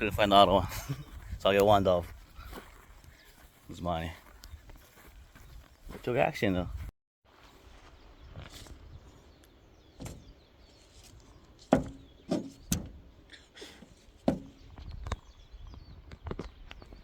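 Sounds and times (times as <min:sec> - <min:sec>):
sharp knocks and thumps: 0:10.0 - 0:10.4, 0:11.0 - 0:13.2, 0:13.8 - 0:14.9.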